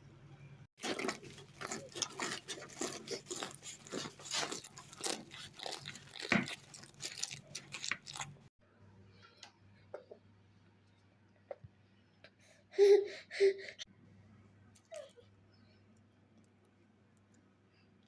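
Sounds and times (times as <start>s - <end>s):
crisp pastry crunching: 0.8s - 8.5s.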